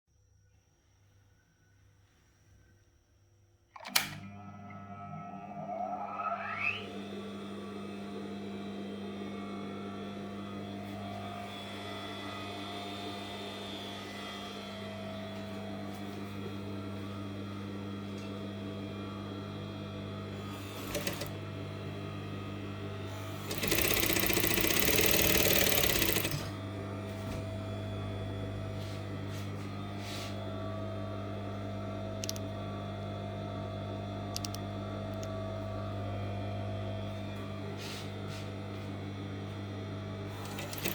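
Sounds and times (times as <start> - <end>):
sewing machine motor humming: 19.6 - 27.3, 40.2 - 40.9.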